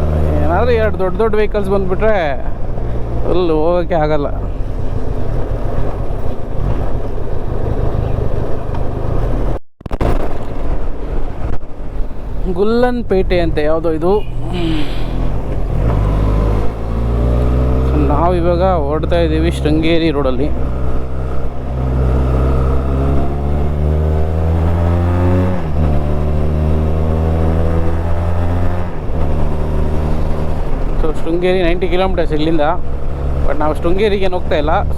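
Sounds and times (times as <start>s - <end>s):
road noise: 0.0s - 34.9s
wind noise: 4.4s - 33.4s
motorcycle engine running: 14.3s - 34.9s.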